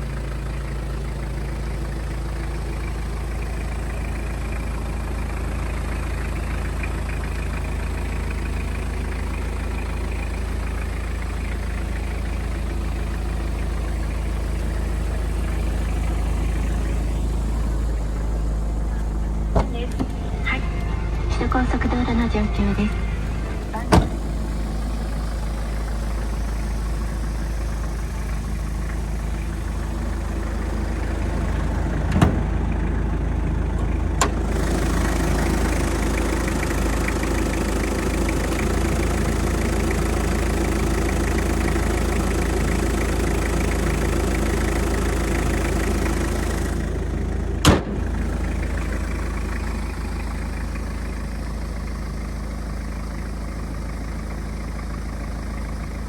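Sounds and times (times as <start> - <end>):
diesel engine idling: 0.0 - 56.0
loud rushing noise: 19.6 - 25.0.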